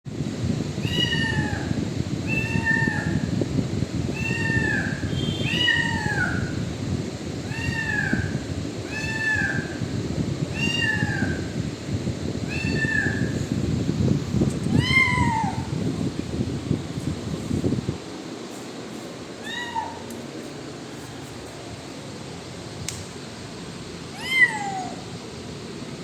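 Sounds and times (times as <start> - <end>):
low background rumble: 0.1 - 26.0
kitten meowing: 0.9 - 1.7, 2.3 - 3.2, 4.1 - 6.5, 7.5 - 8.3, 8.9 - 9.8, 10.5 - 11.4, 12.5 - 13.5, 14.7 - 15.7, 19.4 - 20.1, 24.1 - 25.0.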